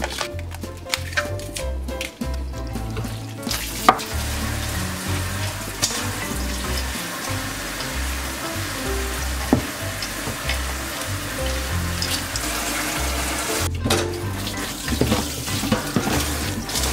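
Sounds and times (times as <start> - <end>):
wet squishing and rustling: 0.0 - 13.3.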